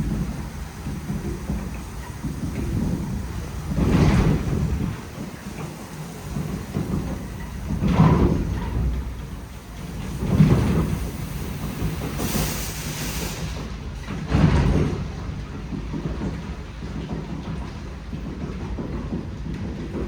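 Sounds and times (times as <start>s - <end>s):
car wash spray on bodywork: 0.0s - 13.8s
high hiss: 0.0s - 13.8s.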